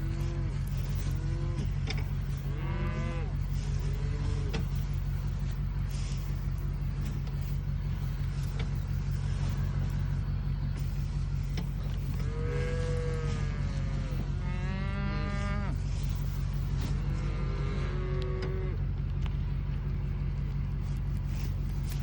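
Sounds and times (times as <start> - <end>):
cattle mooing: 0.0 - 6.5, 12.0 - 18.8
vehicle engine humming: 0.0 - 22.0.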